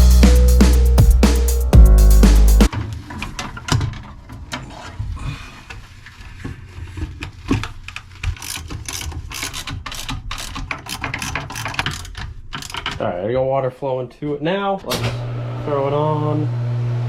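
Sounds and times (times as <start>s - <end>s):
loud music: 0.0s - 2.7s
tools clicking and knocking: 8.2s - 13.0s.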